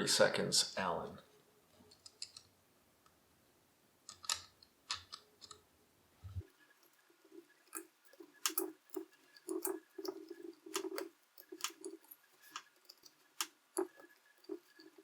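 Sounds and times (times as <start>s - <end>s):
metal scraping rattles: 6.4s - 15.0s
allen wrench clicking on metal: 7.6s - 15.0s.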